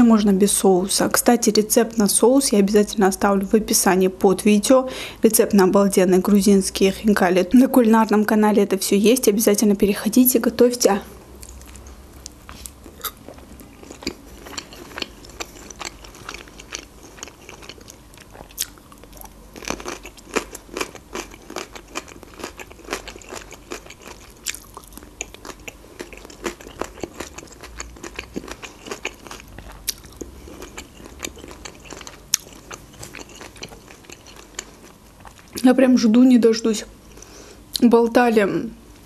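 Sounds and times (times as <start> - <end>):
crunchy chewing: 11.4 - 35.6.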